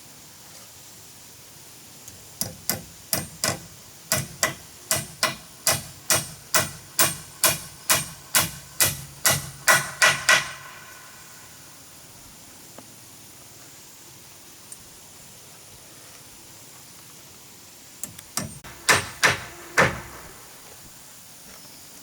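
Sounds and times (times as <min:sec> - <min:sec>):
hammer blows: 0:02.4 - 0:11.5, 0:18.4 - 0:20.6.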